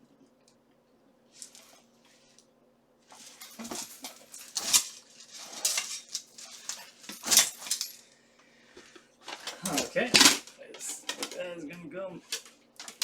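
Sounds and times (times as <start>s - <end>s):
metal armor plates clinking: 3.2s - 8.0s, 9.3s - 11.4s.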